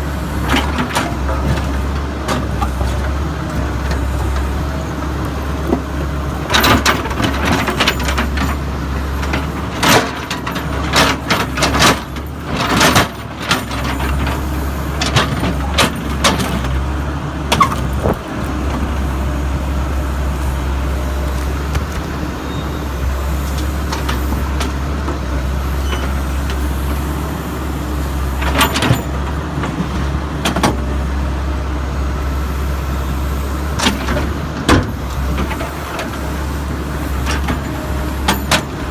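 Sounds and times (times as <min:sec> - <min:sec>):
backhoe diesel engine running: 0:00.0 - 0:38.9.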